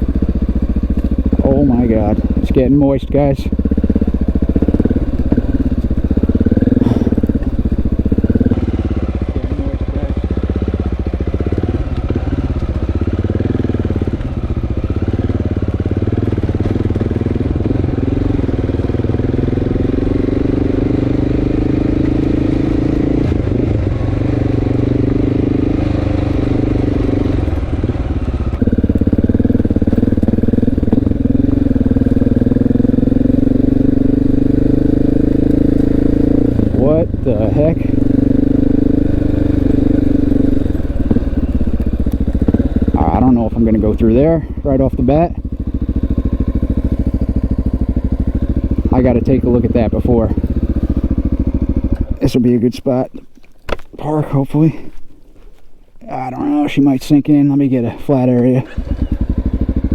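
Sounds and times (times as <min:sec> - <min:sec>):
motorcycle engine running: 0:00.0 - 0:53.8, 0:56.1 - 0:59.9.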